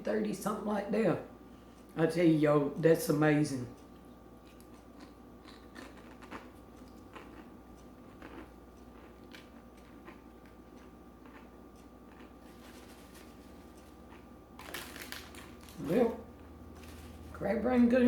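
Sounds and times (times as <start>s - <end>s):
low electrical hum: 0.0s - 18.0s
chewing crunches and mouth clicks: 3.8s - 15.9s.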